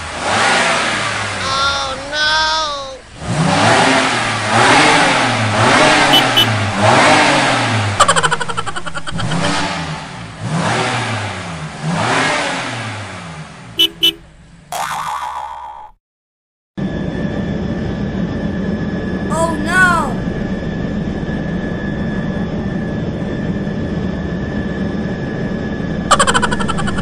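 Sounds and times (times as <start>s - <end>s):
small motorbike engine revving: 3.2s - 8.0s
short beeps: 6.1s - 6.5s, 13.8s - 14.2s.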